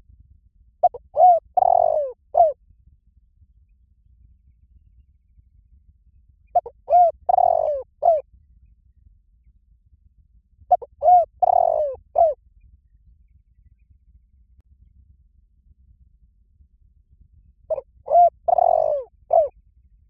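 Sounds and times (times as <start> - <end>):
dove cooing: 0.8 - 2.6, 6.6 - 8.2, 10.7 - 12.4, 17.7 - 19.5.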